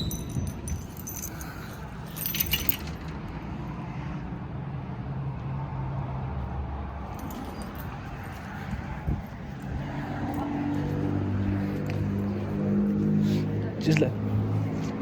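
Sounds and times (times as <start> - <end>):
keys jingling: 0.0 - 3.2, 7.1 - 8.4.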